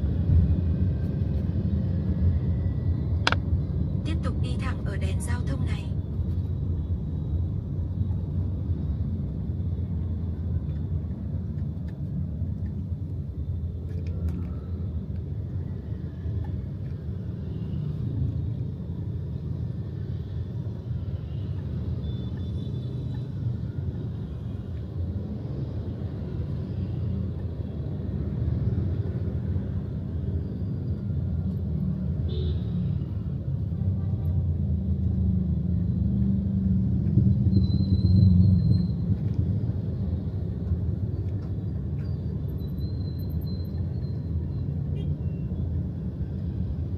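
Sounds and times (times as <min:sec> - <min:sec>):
vehicle engine rumble: 0:00.0 - 0:32.2
road noise: 0:00.0 - 0:46.9.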